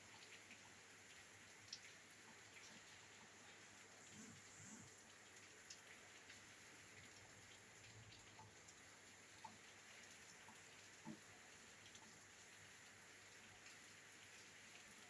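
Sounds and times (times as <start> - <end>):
rain drops tapping on window: 0.1 - 15.0.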